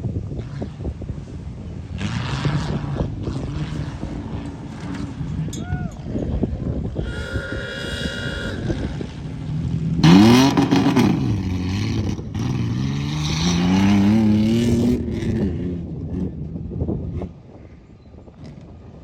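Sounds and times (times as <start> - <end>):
truck engine revving: 7.0 - 17.2.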